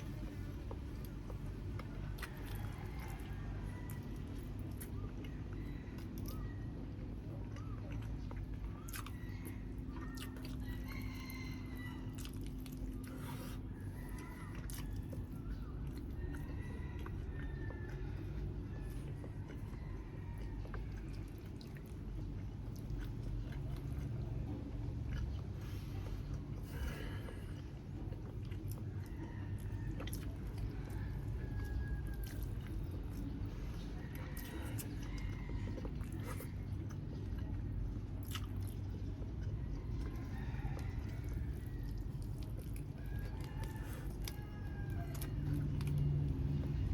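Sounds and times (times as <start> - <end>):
person chewing food: 0.0 - 46.9
steady low hum: 0.0 - 46.9.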